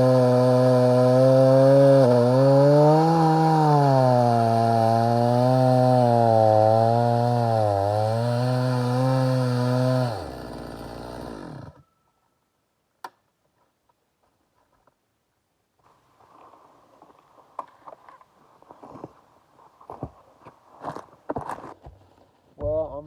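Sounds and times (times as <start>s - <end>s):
chainsaw cutting wood: 0.0s - 11.8s.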